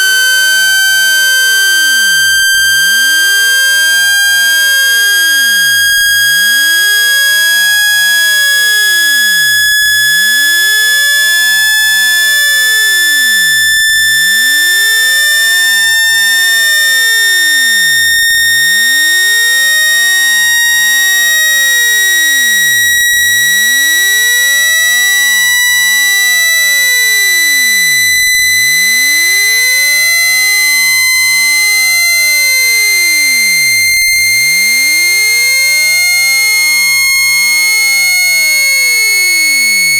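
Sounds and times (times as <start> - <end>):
rising electronic pure tone: 0.0 - 2.3, 12.5 - 36.1.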